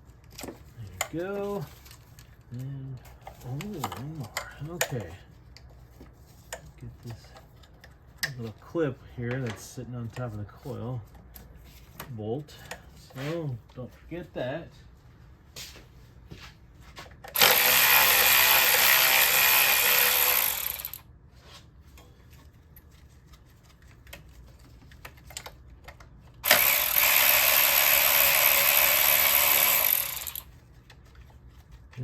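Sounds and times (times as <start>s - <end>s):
power tool running: 17.4s - 21.0s, 26.4s - 30.5s.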